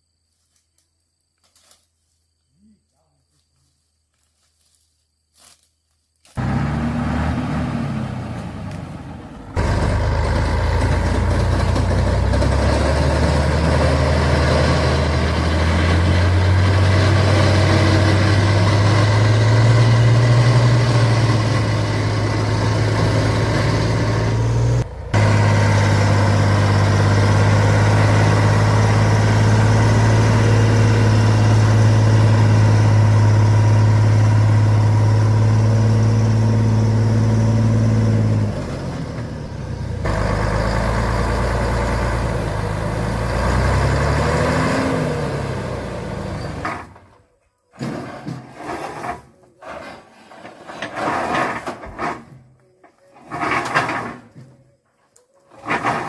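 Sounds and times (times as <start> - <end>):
heavy truck engine running: 6.4 - 47.2.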